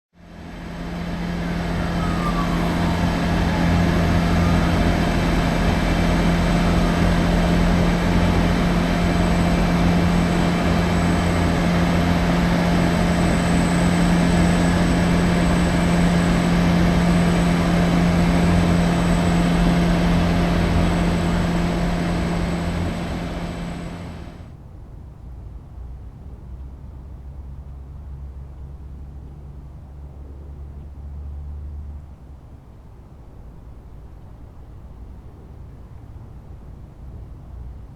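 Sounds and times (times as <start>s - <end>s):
constant low hum: 0.2s - 37.9s
jet engines roaring: 1.0s - 24.5s.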